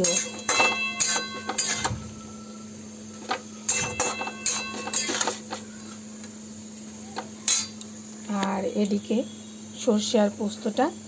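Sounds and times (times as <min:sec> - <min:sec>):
metal spatula scraping pan: 0:00.0 - 0:02.0, 0:03.7 - 0:05.4.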